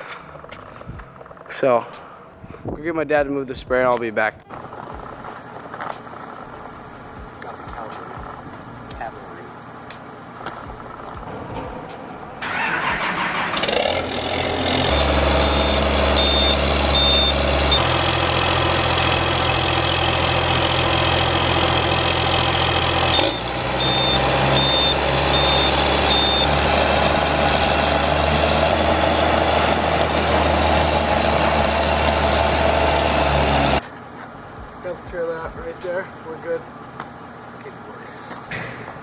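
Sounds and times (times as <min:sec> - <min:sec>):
vehicle engine starting and running: 0:04.5 - 0:37.4
high-pitched beeping: 0:14.9 - 0:17.9, 0:22.6 - 0:26.6.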